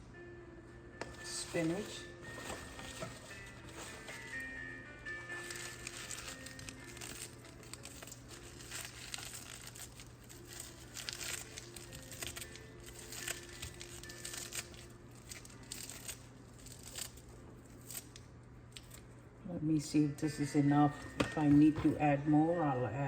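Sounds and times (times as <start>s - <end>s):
spinach leaves crinkling: 1.0s - 4.5s, 5.2s - 19.2s.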